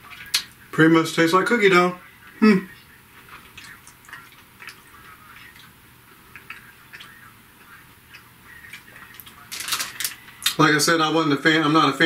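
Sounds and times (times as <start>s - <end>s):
chewing candy bar: 3.2s - 10.6s.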